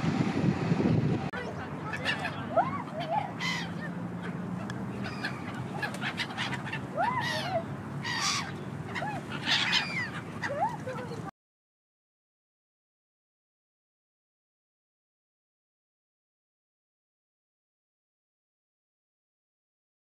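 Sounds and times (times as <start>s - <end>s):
birds calling: 1.4s - 11.3s.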